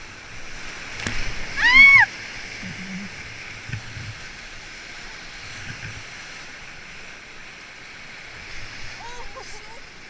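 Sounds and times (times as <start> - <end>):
river rapids rushing: 0.0 - 5.4
faint low knocks: 2.6 - 4.3.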